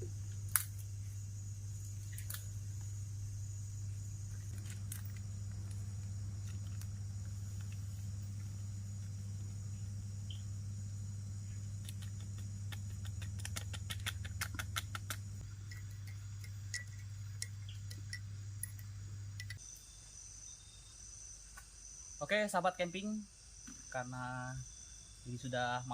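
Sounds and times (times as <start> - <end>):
steady low hum: 0.0 - 25.9
light clicks and clinks: 15.5 - 19.6.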